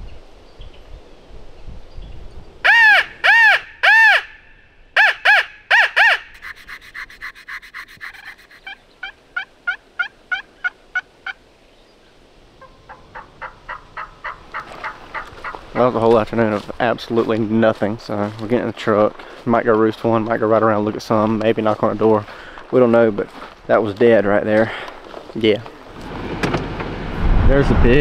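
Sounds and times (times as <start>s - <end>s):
turkey yelping: 2.6s - 4.4s, 5.0s - 11.4s, 12.6s - 15.8s.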